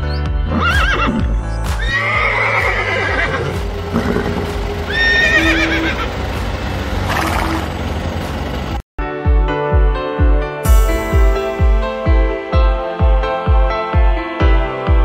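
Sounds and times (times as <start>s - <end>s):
background music: 0.0s - 15.0s
horse whinnying: 0.5s - 6.1s.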